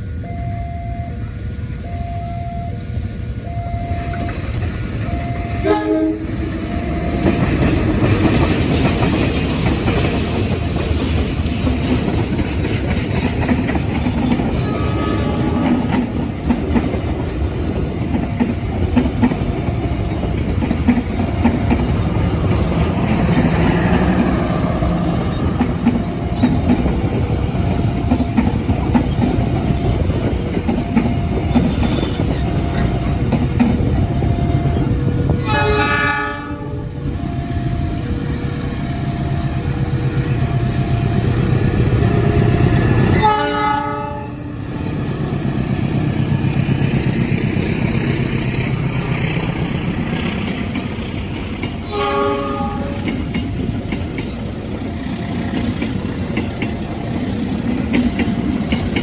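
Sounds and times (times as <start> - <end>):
train wheels clattering: 4.0 - 35.4, 44.9 - 59.0
locomotive horn blasts: 5.1 - 7.3, 14.6 - 15.9, 35.4 - 37.8, 42.1 - 44.7, 51.9 - 53.2.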